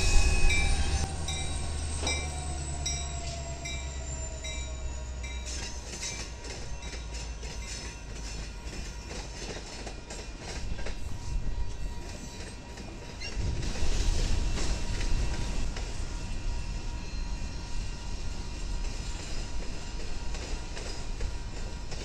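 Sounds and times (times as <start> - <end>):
crossing bell ringing: 0.0 - 10.4
freight train rumble: 0.0 - 22.0.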